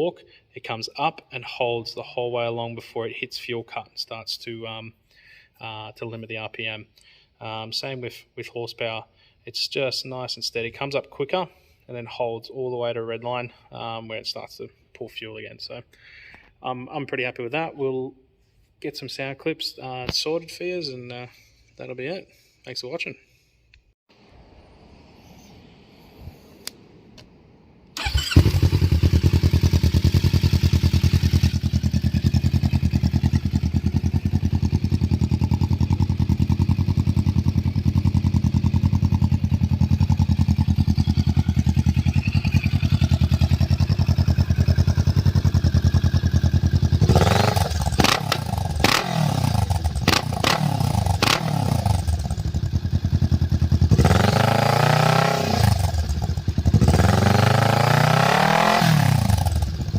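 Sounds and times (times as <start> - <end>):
exhaust cracks: 26.6 - 59.9
motorcycle engine idling and revving: 26.6 - 59.9.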